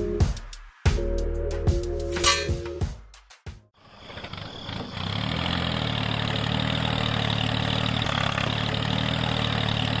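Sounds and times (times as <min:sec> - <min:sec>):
tractor engine running: 0:03.8 - 0:10.0.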